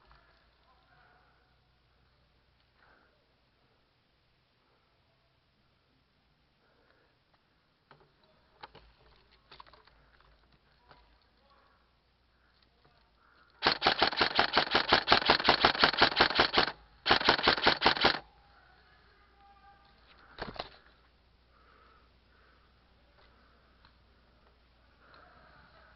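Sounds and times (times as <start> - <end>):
faint clicks and rustling: 6.8 - 18.2
airsoft rifle firing full auto: 13.6 - 18.2.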